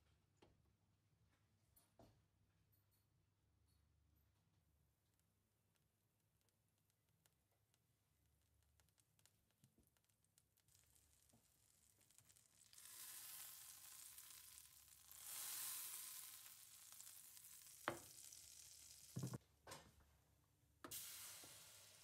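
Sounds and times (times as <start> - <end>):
food sizzling in a pan: 10.2 - 19.4, 20.9 - 22.0.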